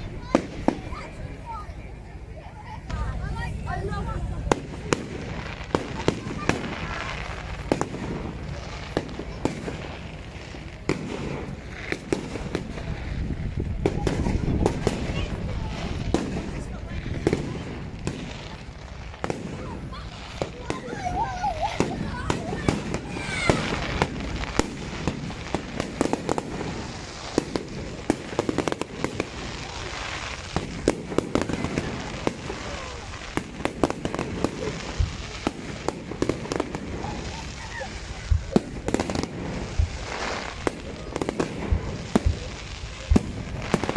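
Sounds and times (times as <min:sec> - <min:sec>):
steady low rumble: 0:00.0 - 0:09.2
fireworks cracks and bangs: 0:00.0 - 0:43.9.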